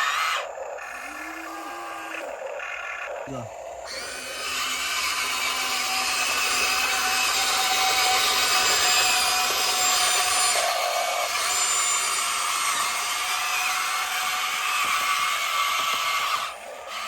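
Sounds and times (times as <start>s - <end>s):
model excavator motors whining: 0.0s - 17.0s.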